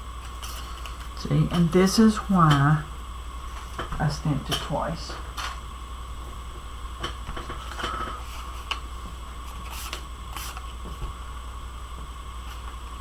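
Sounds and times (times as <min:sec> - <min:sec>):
faint steady whine: 0:00.0 - 0:13.0
low electrical hum: 0:00.0 - 0:13.0
paper handling: 0:09.5 - 0:11.0.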